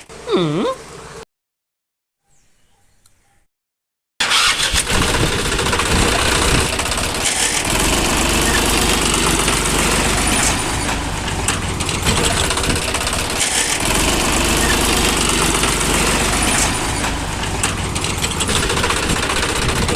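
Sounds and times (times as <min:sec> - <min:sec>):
engine-like running sound: 0:04.2 - 0:19.9.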